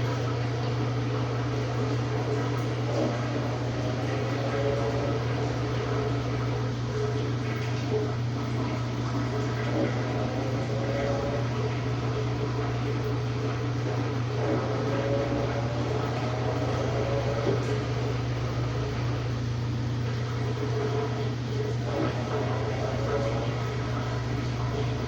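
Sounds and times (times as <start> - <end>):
washing machine humming: 0.0 - 25.0.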